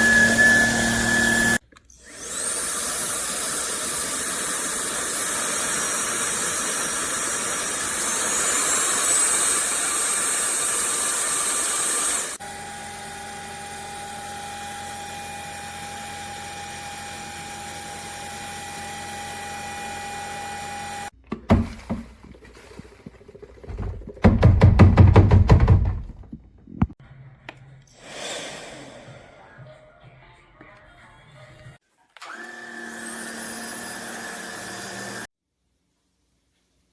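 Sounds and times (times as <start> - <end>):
vacuum humming with clear tone: 0.0 - 21.1, 32.2 - 35.3
vacuum motor whining: 0.0 - 21.1, 32.2 - 35.3
knocks: 23.7 - 26.9.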